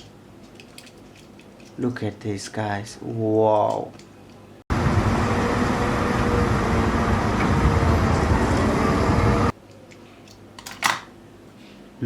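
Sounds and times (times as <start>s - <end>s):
loud vehicle noise: 4.7s - 9.5s.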